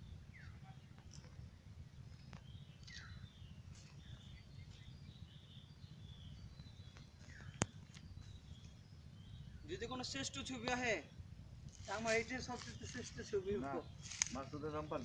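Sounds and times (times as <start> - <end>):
faint bird chirps: 0.0 - 10.7
low outdoor rumble: 0.0 - 15.0.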